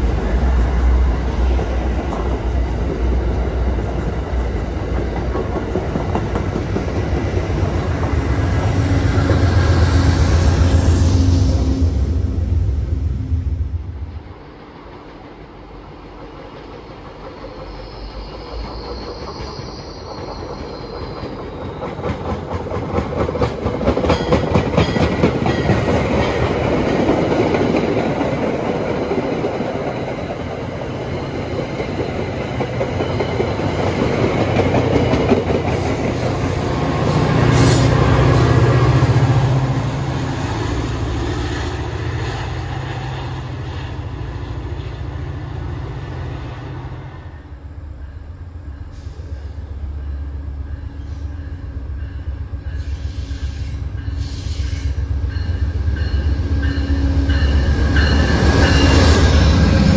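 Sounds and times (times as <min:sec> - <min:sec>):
train wheels rolling: 0:00.0 - 0:47.3.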